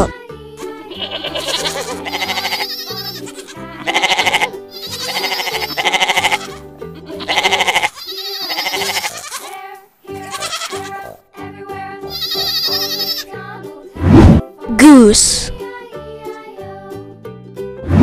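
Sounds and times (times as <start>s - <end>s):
goat bleating: 0.0s - 11.2s, 12.1s - 13.4s
background music: 0.0s - 18.0s.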